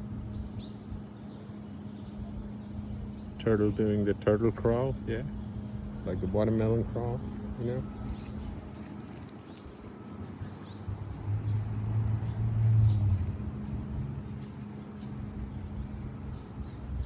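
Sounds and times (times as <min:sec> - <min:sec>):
steady low drone: 0:00.0 - 0:17.0
motor vehicle passing: 0:03.3 - 0:17.0.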